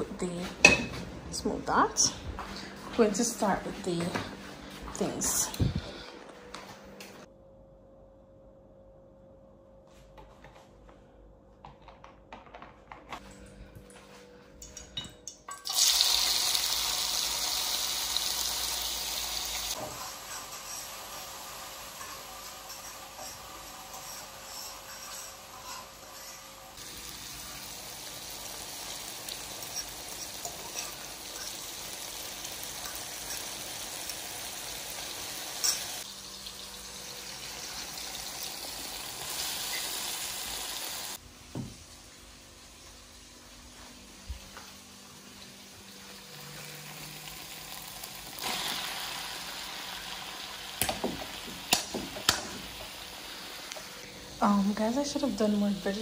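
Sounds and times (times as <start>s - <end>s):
fish sizzling in a pot: 15.6s - 41.2s, 45.8s - 55.3s.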